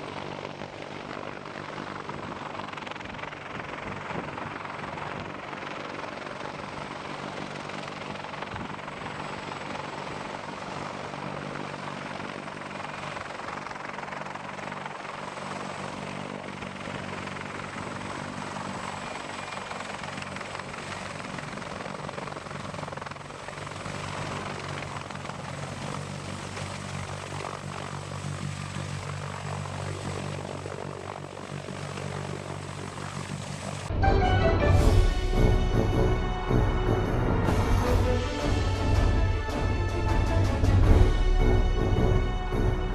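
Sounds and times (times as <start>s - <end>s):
helicopter rotor drone: 0.0s - 42.9s
broad rushing noise: 33.1s - 42.9s.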